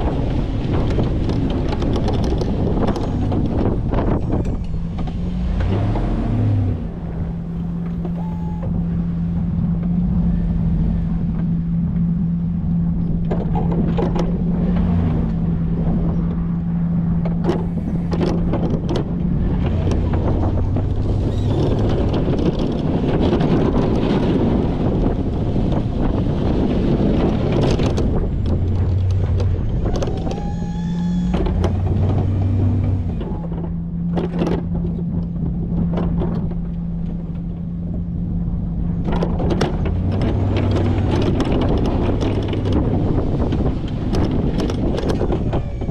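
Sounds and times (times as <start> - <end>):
truck engine humming: 0.0 - 45.9
wind buffeting microphone: 0.0 - 45.9.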